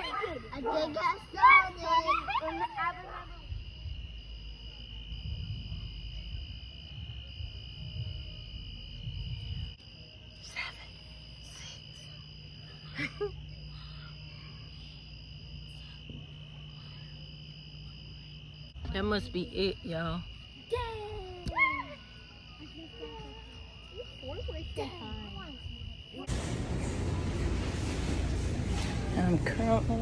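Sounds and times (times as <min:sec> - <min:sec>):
higher insect trill pulsing: 0:00.0 - 0:26.3
insects trilling: 0:00.0 - 0:26.3.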